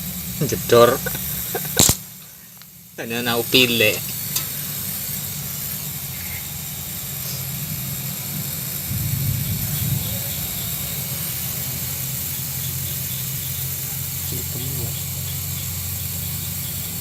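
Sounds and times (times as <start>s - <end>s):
welding torch flame hissing: 0.0s - 17.0s.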